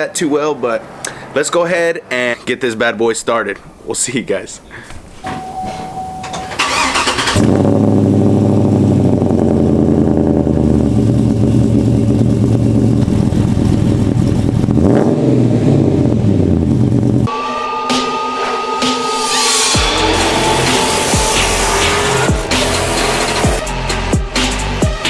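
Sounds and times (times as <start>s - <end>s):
truck engine cranking and idling: 6.2s - 17.3s
steady beep: 17.3s - 23.6s.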